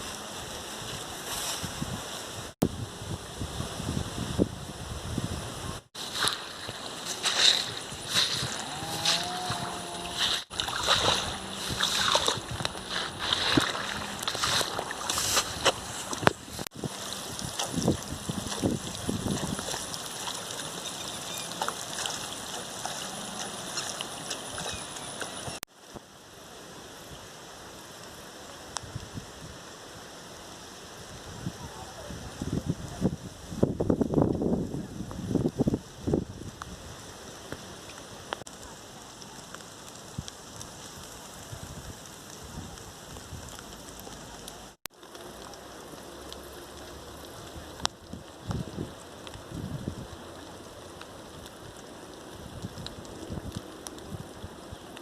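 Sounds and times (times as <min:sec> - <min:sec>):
steady rain: 0:00.0 - 0:55.0
stream water flowing: 0:06.0 - 0:25.6.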